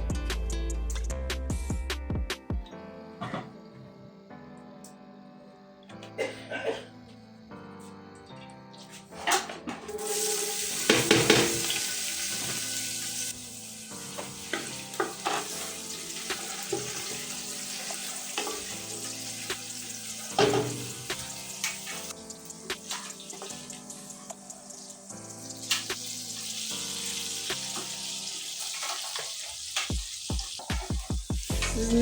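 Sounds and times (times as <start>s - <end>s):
food sizzling in a pan: 9.9s - 32.0s
spoon scraping and knocking pan: 10.8s - 12.6s, 14.1s - 17.2s, 20.3s - 21.0s.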